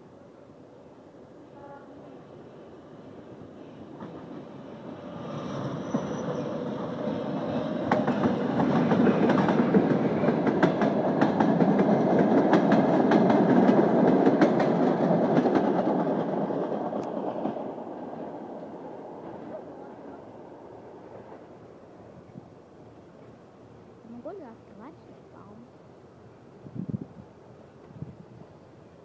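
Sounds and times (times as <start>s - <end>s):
train passing: 0.0s - 29.0s
wheels clacking over rail joints: 7.1s - 18.6s.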